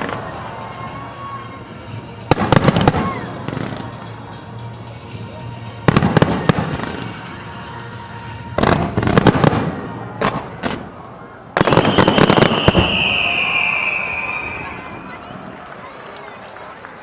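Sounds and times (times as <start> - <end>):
fireworks crackling: 0.0 - 17.0
high whistling tone sliding down: 11.7 - 15.2.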